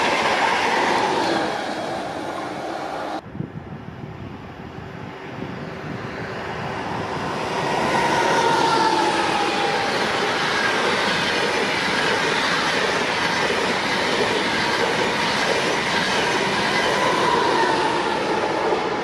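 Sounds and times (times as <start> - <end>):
electric train passing: 0.0 - 19.0.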